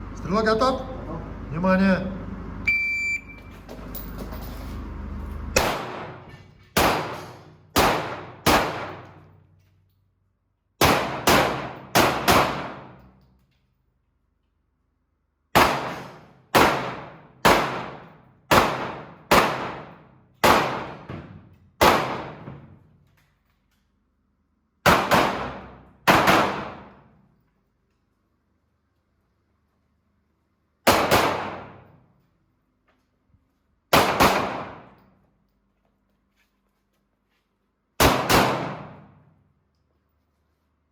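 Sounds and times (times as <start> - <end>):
shot timer beep: 2.6 - 3.5
pistol shots with ringing echo: 5.6 - 9.3, 10.8 - 13.1, 15.5 - 21.1, 21.8 - 22.5, 24.8 - 27.0, 30.9 - 31.9, 33.9 - 35.0, 38.0 - 39.2.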